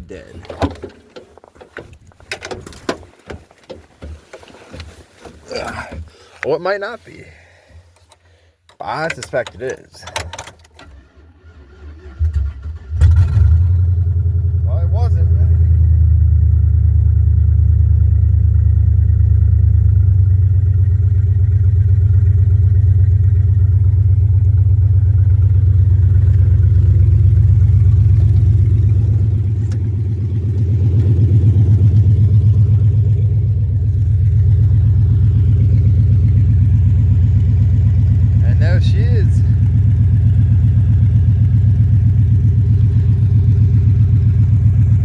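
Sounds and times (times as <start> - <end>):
truck engine idling loudly: 14.1 - 45.0.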